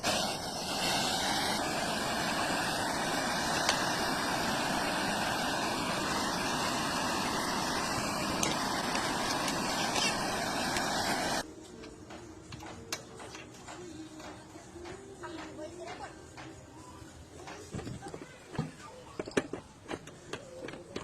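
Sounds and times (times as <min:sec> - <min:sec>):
air conditioning unit whooshing: 0:00.0 - 0:11.5.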